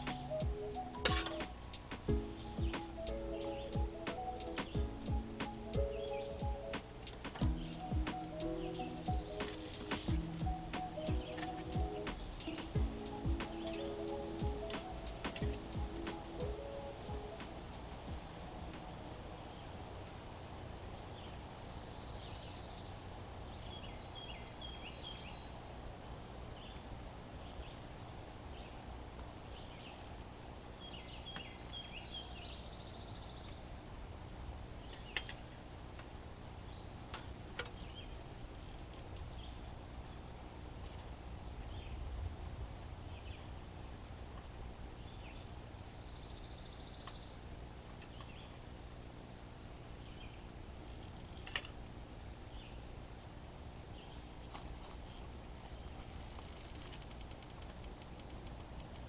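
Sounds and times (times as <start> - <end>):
birds calling: 0.0 - 19.7
steady low background: 0.0 - 19.8.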